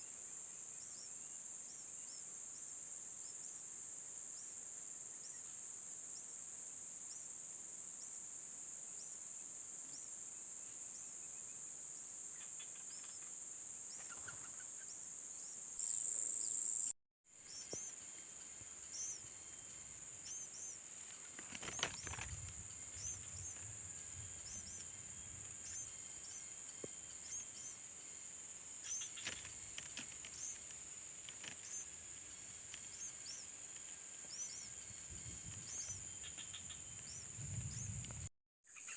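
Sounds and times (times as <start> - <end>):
insects droning: 0.0 - 38.9
rustles or knocks: 21.0 - 23.7.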